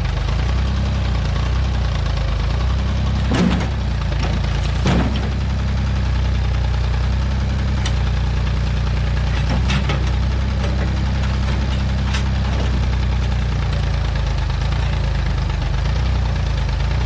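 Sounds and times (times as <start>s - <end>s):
backhoe engine running: 0.0s - 17.0s.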